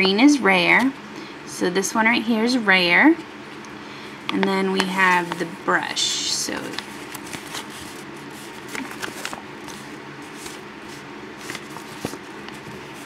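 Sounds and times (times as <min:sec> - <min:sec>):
paper rustling: 0:04.8 - 0:05.5, 0:06.5 - 0:13.0.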